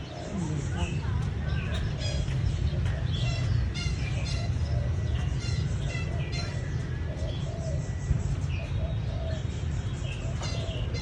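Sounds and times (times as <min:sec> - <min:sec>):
pigeons cooing: 0:00.0 - 0:11.0
small birds chirping: 0:00.0 - 0:11.0
steady low rumble: 0:00.0 - 0:11.0.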